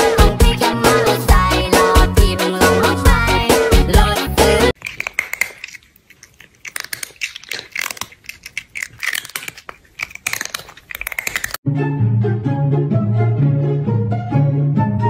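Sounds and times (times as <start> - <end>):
crunchy chewing: 4.7 - 11.6.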